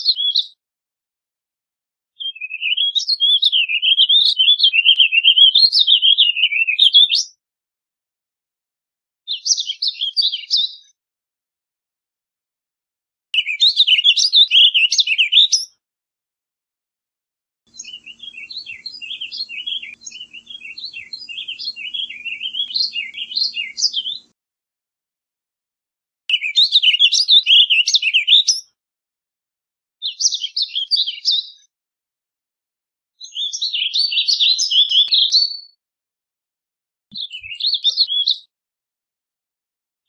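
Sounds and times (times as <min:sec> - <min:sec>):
bird warbling song: 0:02.2 - 0:07.3, 0:13.4 - 0:15.7, 0:17.7 - 0:24.3, 0:26.3 - 0:28.6, 0:33.2 - 0:35.7, 0:37.1 - 0:38.5.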